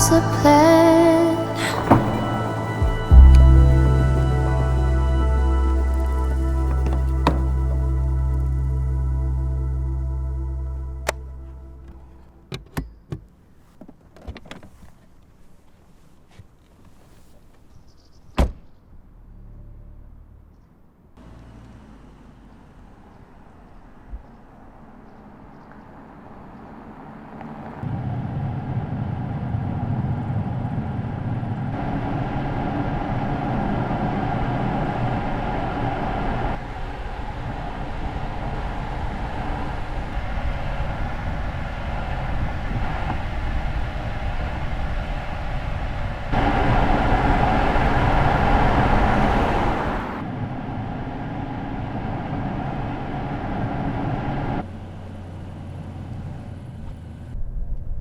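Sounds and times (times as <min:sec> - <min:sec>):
tyre and road rumble: 0:00.0 - 0:58.0
wind noise: 0:27.8 - 0:54.6, 0:57.4 - 0:58.0.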